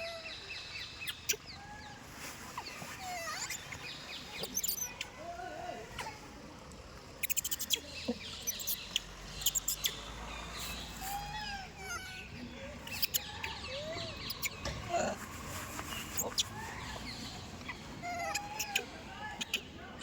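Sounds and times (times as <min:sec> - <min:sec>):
monkey cooing and chirping: 0:02.6 - 0:05.1, 0:07.2 - 0:10.0, 0:10.8 - 0:15.2, 0:16.0 - 0:20.0.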